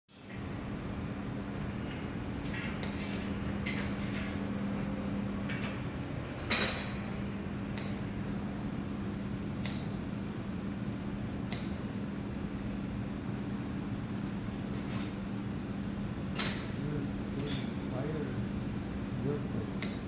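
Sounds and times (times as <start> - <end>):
welding equipment humming: 0.3 - 20.0.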